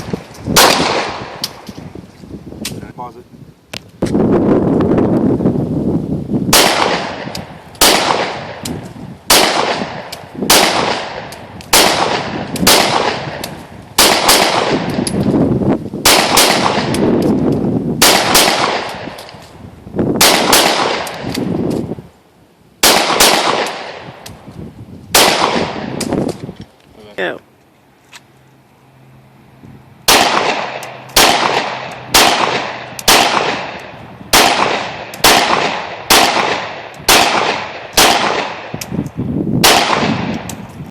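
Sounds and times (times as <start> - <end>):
pistol shots echoing: 0.6 - 1.4, 6.5 - 15.2, 16.0 - 17.1, 18.0 - 19.3, 20.2 - 21.4, 22.8 - 24.2, 25.1 - 26.1, 30.1 - 38.8, 39.6 - 40.5.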